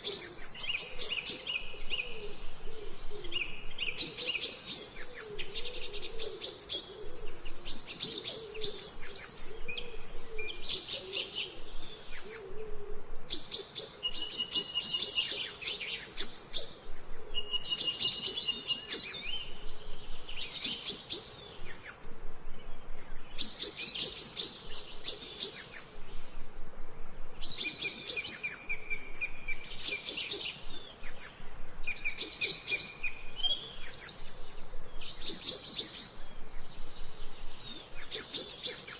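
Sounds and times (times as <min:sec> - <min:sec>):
faint low cooing: 0:00.0 - 0:03.6, 0:05.0 - 0:13.3
songbirds chirping and trilling: 0:00.0 - 0:38.9.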